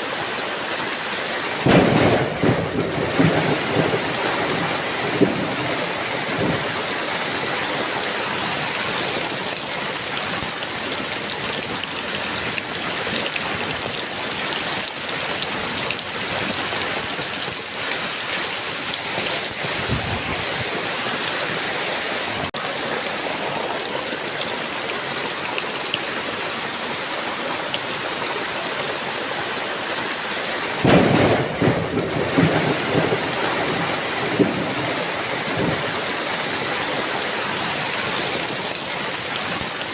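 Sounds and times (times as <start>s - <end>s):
heavy rain: 0.0s - 39.9s
thunder rumbling: 1.6s - 7.5s, 30.8s - 36.4s.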